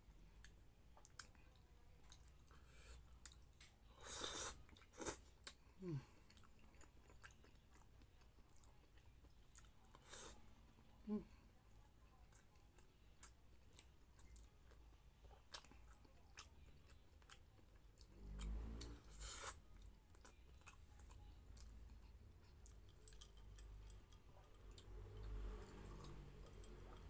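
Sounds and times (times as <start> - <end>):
chewing and wet mouth clicks: 0.4 - 3.7, 12.3 - 27.0.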